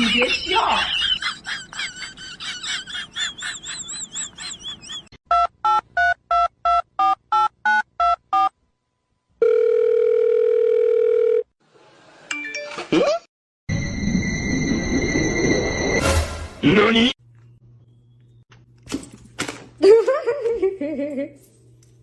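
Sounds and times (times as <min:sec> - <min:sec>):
steady phone tone: 0:09.4 - 0:11.5.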